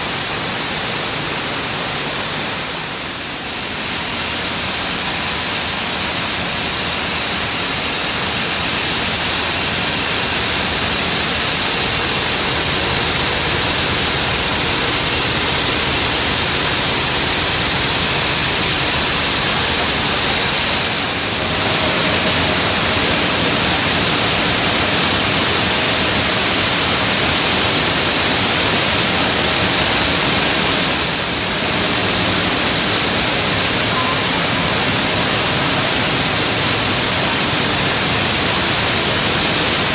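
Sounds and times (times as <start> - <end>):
sorting machine rushing hiss: 0.0 - 39.9.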